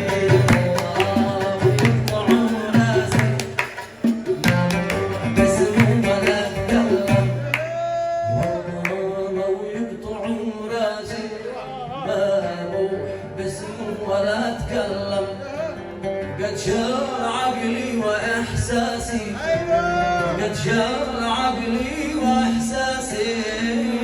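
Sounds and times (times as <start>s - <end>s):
drum strokes: 0.0s - 7.7s
plucked string instrument: 0.0s - 10.8s, 11.9s - 24.0s
person singing: 0.0s - 15.7s.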